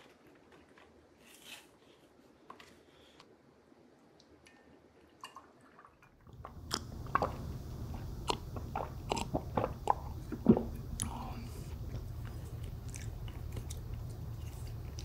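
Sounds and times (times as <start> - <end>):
biting and chewing food: 6.3 - 15.0.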